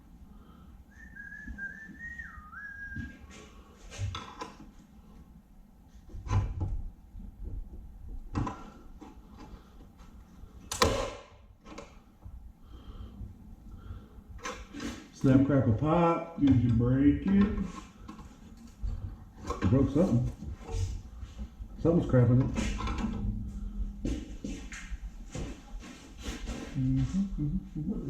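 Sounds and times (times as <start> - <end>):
person whistling: 0.9 - 3.3
clanks and knocks of shop work: 22.3 - 23.2.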